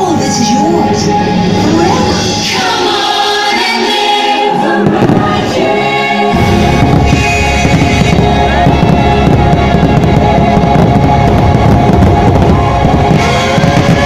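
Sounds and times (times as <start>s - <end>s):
music: 0.0s - 14.0s
fireworks bangs: 4.6s - 14.0s
whistling fireworks: 4.8s - 14.0s.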